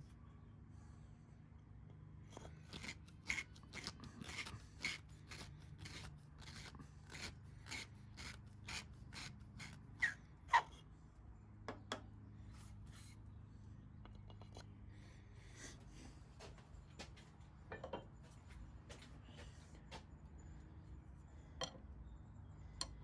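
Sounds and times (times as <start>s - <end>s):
chisel rasping wood: 2.4s - 10.2s.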